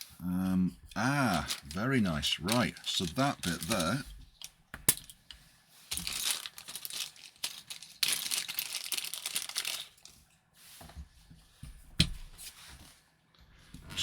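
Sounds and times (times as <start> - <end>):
packaging crinkling: 0.9 - 10.2.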